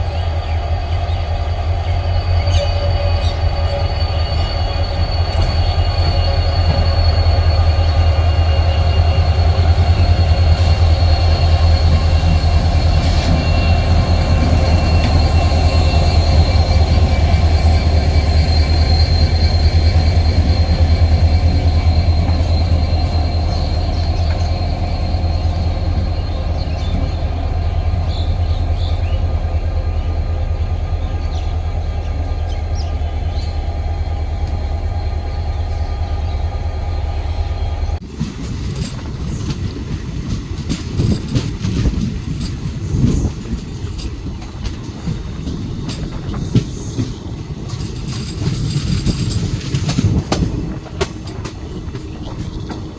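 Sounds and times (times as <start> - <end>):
steel wheels squealing on rail: 0.0 - 38.0, 40.7 - 52.9
train wheels rumbling on track: 0.0 - 52.9.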